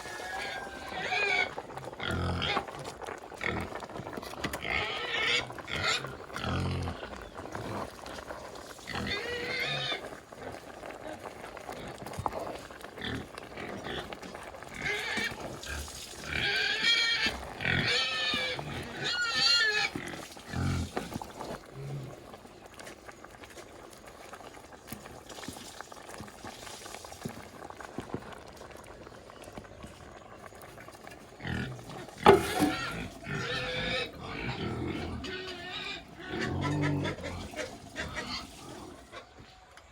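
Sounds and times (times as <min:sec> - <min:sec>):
pigs squealing: 0:00.0 - 0:10.6, 0:12.6 - 0:22.1, 0:31.4 - 0:39.5
pig grunts: 0:00.4 - 0:02.8, 0:04.6 - 0:08.1, 0:08.8 - 0:21.1, 0:21.7 - 0:22.2, 0:31.4 - 0:39.3.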